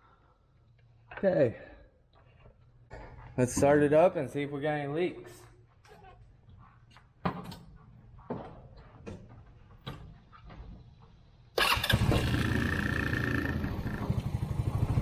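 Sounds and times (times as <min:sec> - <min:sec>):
small engine running: 0:11.6 - 0:15.0.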